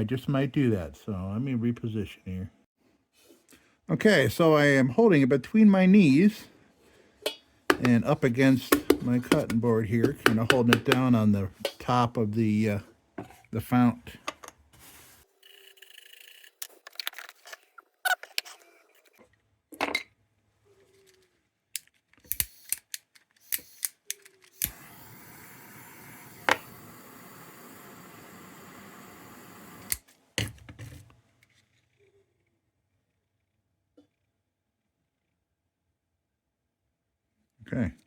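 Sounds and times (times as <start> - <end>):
clicks and knocks of handling tools: 8.6 - 11.9
steady gas hiss: 24.6 - 30.0.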